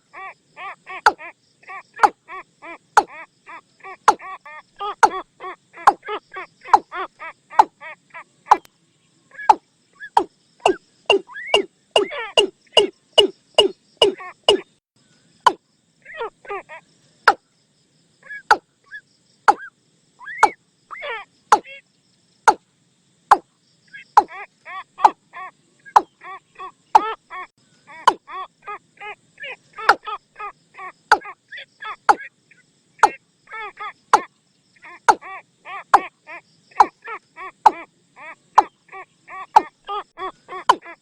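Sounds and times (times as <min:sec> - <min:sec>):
sharp dry knocking bird calls: 0:01.0 - 0:01.2, 0:02.0 - 0:02.2, 0:02.9 - 0:03.2, 0:04.0 - 0:07.8, 0:08.5 - 0:08.7, 0:09.3 - 0:14.8, 0:18.3 - 0:21.7, 0:23.3 - 0:24.4, 0:25.0 - 0:25.2, 0:25.8 - 0:26.2, 0:26.9 - 0:27.2, 0:28.0 - 0:28.2, 0:29.8 - 0:30.2, 0:31.1 - 0:31.4, 0:32.0 - 0:32.3, 0:33.0 - 0:33.2, 0:34.1 - 0:34.3, 0:35.0 - 0:35.3, 0:36.7 - 0:37.9, 0:38.5 - 0:41.0.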